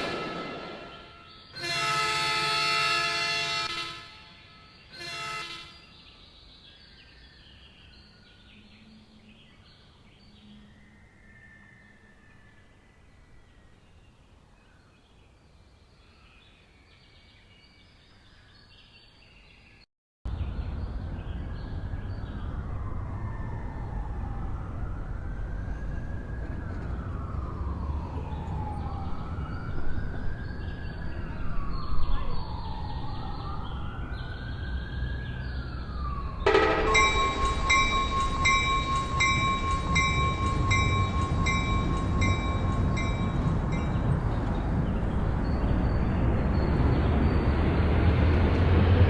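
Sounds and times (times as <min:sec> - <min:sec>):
fire truck siren wailing: 0:22.5 - 0:45.8.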